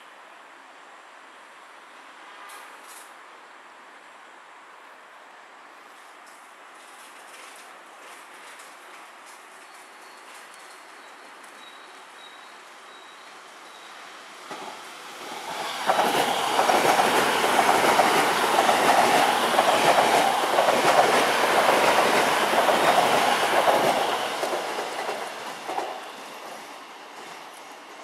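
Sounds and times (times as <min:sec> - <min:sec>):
train passing close by: 0:06.6 - 0:28.0.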